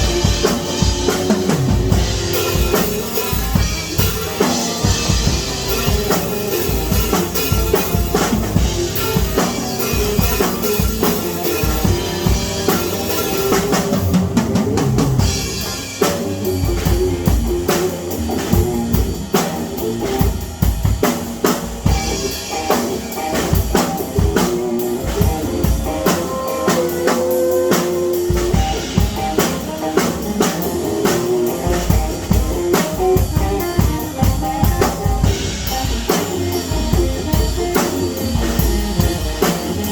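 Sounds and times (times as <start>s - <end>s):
held pitched notes: 0.0s - 19.2s
drum kit beat: 0.0s - 39.9s.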